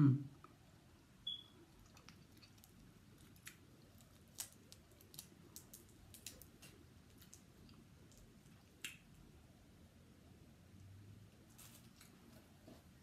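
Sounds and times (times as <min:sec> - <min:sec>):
wet mouth clicks and smacks: 0:07.2 - 0:09.1.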